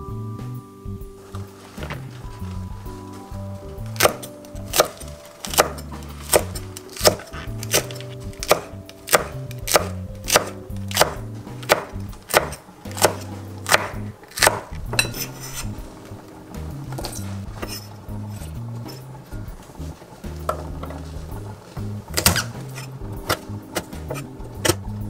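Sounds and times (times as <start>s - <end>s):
knife chopping on wooden board: 4.0s - 15.6s, 22.1s - 24.9s.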